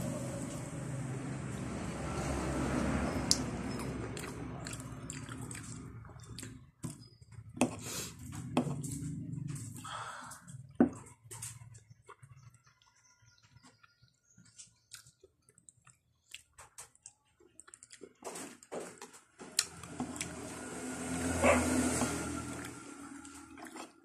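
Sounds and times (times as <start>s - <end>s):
chewing and mouth sounds: 3.3s - 7.1s, 11.5s - 18.3s, 22.5s - 24.0s.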